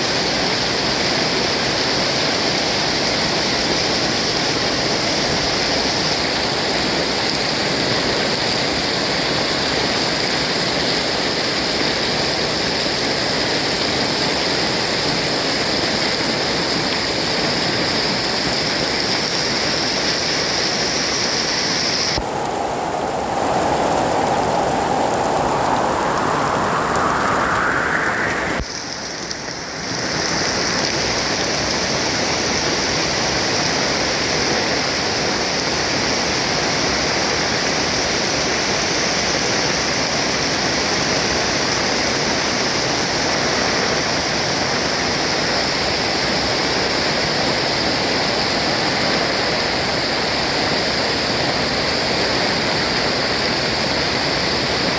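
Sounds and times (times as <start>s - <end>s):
heavy rain pouring: 18.9s - 30.9s
rising tone: 22.1s - 28.8s.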